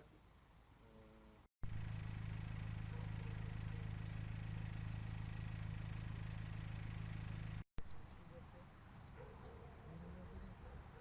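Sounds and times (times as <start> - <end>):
engine idling: 1.6 - 9.2.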